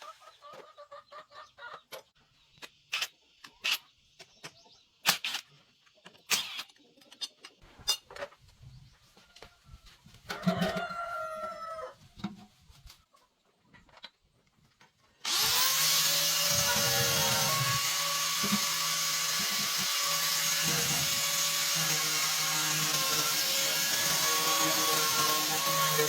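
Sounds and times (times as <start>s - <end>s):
chickens clucking: 0.0s - 5.0s.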